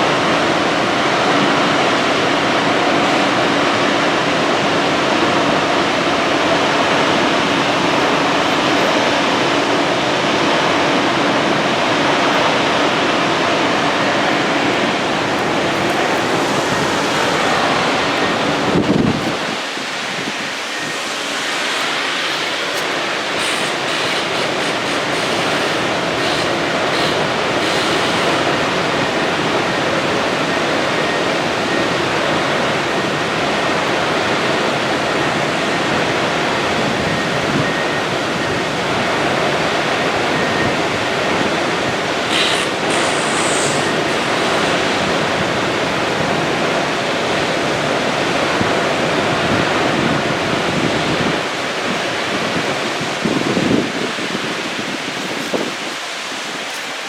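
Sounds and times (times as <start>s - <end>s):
loud rushing noise: 0.0s - 57.0s
short high hiss: 19.6s - 28.5s, 42.2s - 45.1s.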